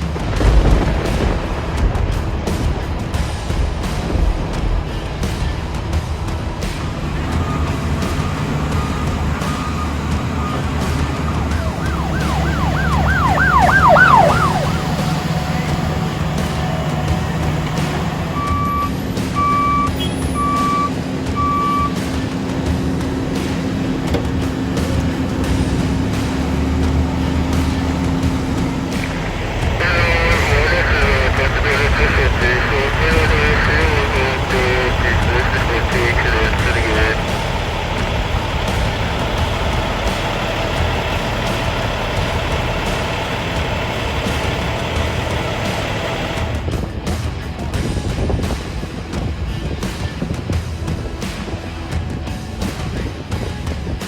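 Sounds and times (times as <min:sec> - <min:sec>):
truck engine running: 0:00.0 - 0:54.0
reversing alarm beeping: 0:07.0 - 0:25.5.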